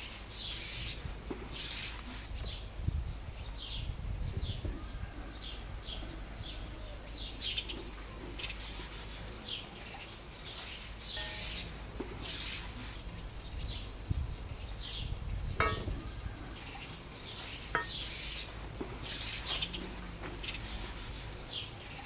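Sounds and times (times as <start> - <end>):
small birds chirping: 0.2 - 2.7, 6.5 - 22.0.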